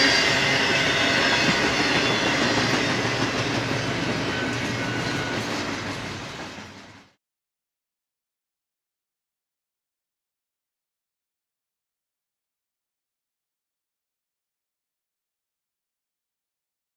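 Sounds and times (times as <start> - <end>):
train wheels clattering on rails: 0.0 - 7.2.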